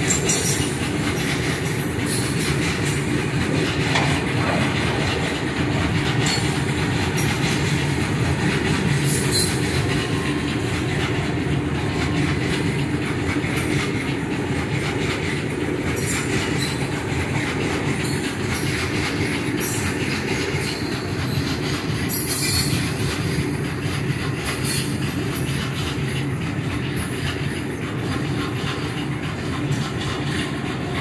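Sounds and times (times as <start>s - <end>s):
train wheels rumbling on rails: 0.0s - 31.0s
high-pitched wheel squeals: 9.0s - 10.4s.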